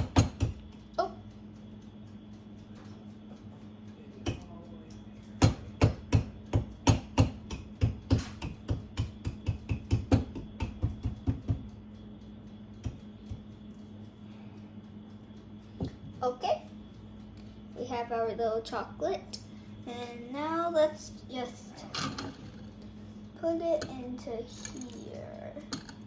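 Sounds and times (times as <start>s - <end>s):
kitchen hammer crushing chocolate: 0.0s - 0.8s, 5.4s - 11.7s.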